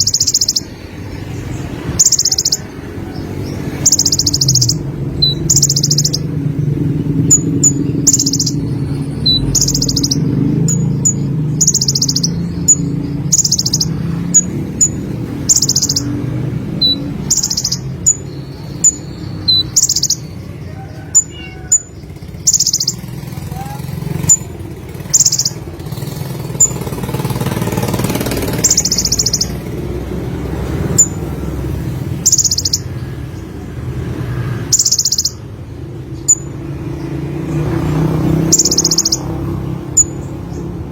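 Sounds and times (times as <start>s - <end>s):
sharp high bird chips: 0.0s - 30.0s, 30.7s - 40.8s
bird singing buzzy phrases: 0.0s - 40.9s
down-slurred bird whistles: 3.8s - 6.3s, 7.3s - 16.1s.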